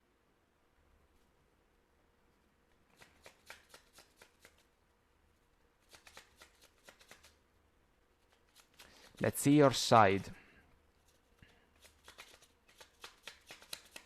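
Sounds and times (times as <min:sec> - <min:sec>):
cards being shuffled: 0:02.9 - 0:04.7, 0:05.8 - 0:07.4, 0:08.2 - 0:09.8, 0:11.0 - 0:14.0.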